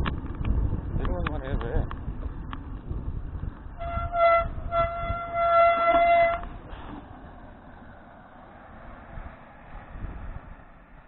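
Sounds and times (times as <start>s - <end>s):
low wind: 0.0s - 11.0s
road rumble: 0.0s - 11.0s
horn blasts: 3.8s - 6.5s.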